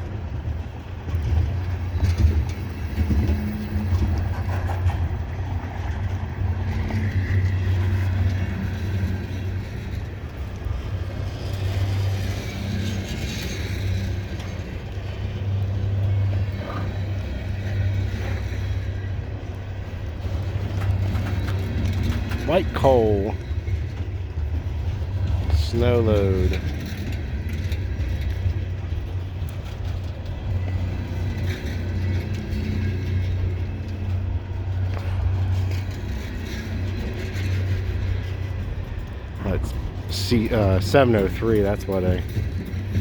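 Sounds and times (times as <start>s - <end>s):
diesel locomotive engine drone: 0.0s - 43.0s.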